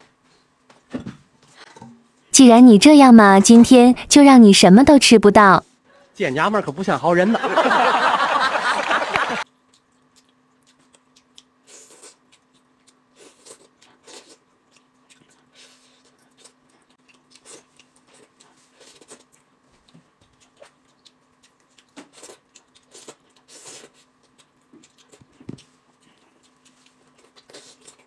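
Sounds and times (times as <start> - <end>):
chewing and sucking on food: 9.4 - 28.0.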